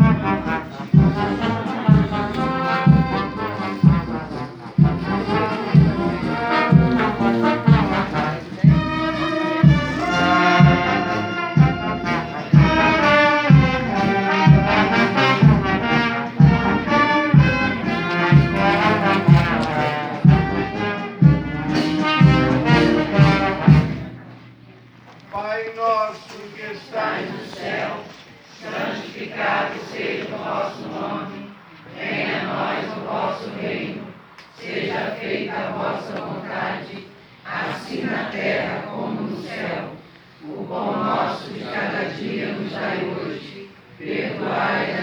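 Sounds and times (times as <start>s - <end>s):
brass band playing a march: 0.0s - 24.6s.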